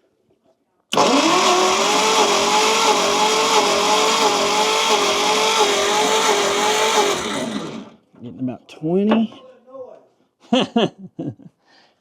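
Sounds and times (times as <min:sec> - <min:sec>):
starter motor cranking engine: 0:00.9 - 0:08.0.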